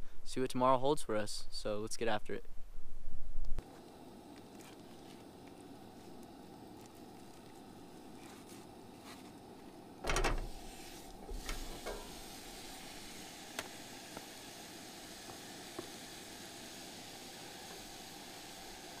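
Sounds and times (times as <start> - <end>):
meat sizzling in a frying pan: 10.4 - 19.0.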